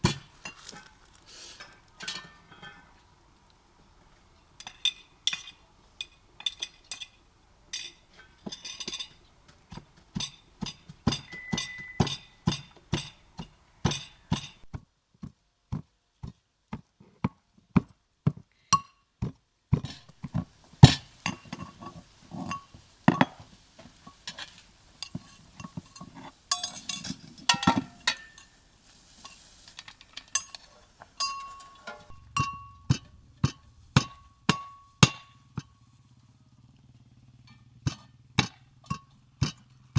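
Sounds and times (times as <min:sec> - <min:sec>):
utensils clinking against dishes: 0:00.0 - 0:03.0, 0:04.6 - 0:09.2, 0:10.1 - 0:13.2, 0:24.1 - 0:35.7.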